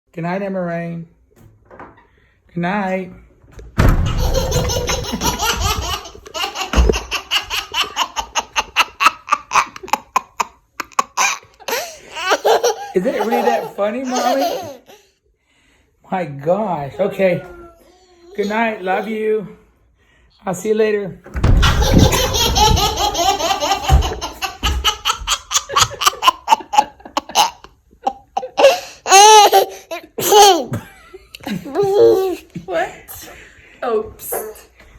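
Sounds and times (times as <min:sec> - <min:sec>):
door slamming: 0:01.4 - 0:02.0, 0:03.4 - 0:08.9, 0:21.2 - 0:26.0
low thump: 0:03.5 - 0:07.2, 0:21.3 - 0:24.9
baby belly-laughing: 0:04.1 - 0:15.0, 0:21.6 - 0:30.8, 0:31.6 - 0:32.5.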